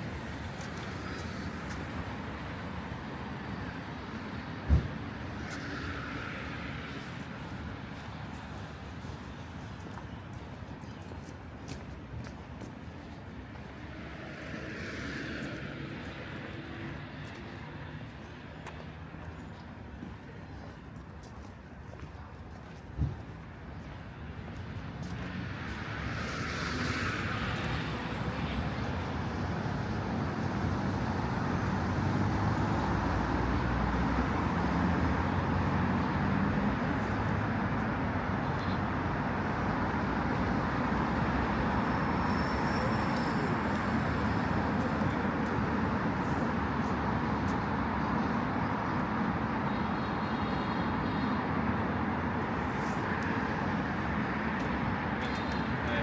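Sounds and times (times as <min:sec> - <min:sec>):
rumble of passing vehicles: 0:00.0 - 0:56.0.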